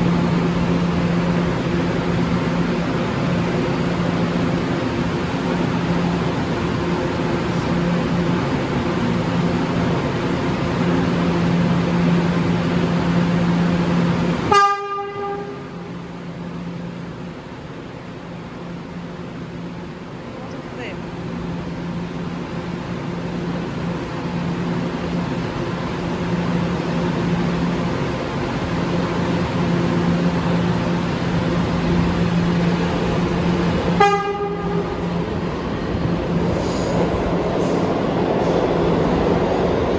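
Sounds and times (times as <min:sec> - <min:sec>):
subway train rumble: 0:00.0 - 0:39.9
train horn toot: 0:14.5 - 0:15.9, 0:33.9 - 0:35.1.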